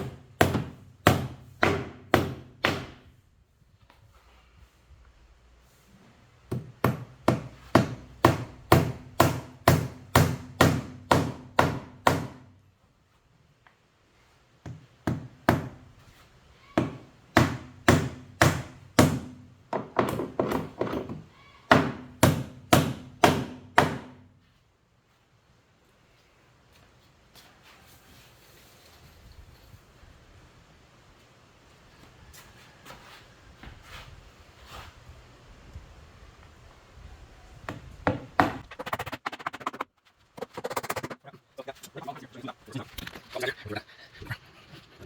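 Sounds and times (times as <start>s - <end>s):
hammer driving nails into wood: 0.0s - 3.0s, 21.7s - 24.2s.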